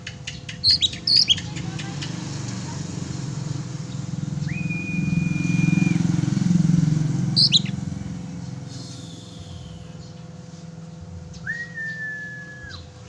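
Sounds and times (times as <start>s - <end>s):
bird chirp: 0.0s - 13.0s
vehicle engine passing: 0.6s - 11.9s
bird whistled note: 4.4s - 6.2s, 7.4s - 7.7s, 11.4s - 12.9s.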